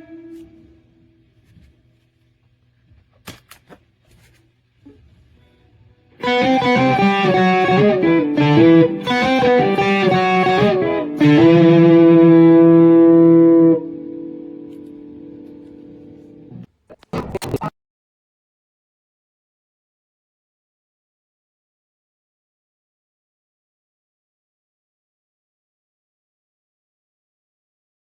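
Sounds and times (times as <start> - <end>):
electric guitar phrase: 0.0 - 0.8, 6.2 - 16.7.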